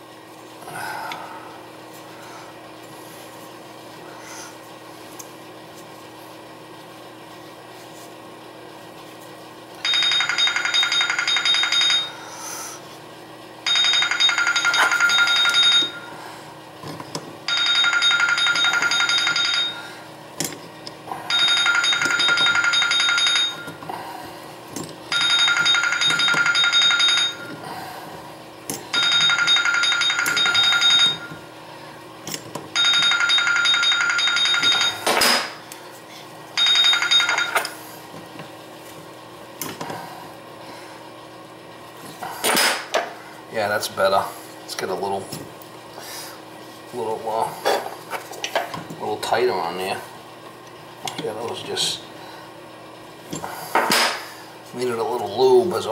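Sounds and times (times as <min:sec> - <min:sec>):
old-style telephone bell ringing: 0:09.8 - 0:12.2, 0:13.6 - 0:16.2, 0:17.5 - 0:19.9, 0:21.3 - 0:23.8, 0:25.1 - 0:27.5, 0:28.9 - 0:31.4, 0:32.8 - 0:35.1, 0:36.6 - 0:37.7.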